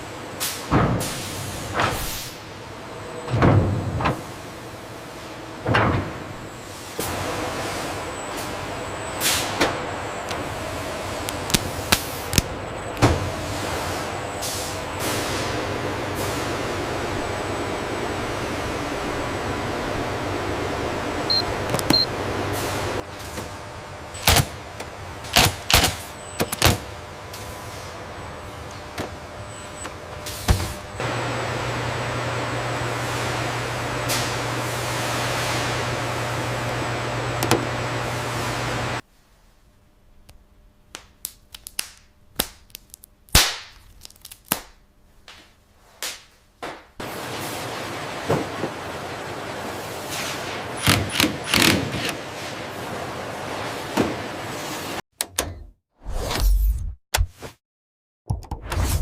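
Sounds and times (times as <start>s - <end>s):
factory machine noise: 0.0s - 39.0s, 47.0s - 55.0s.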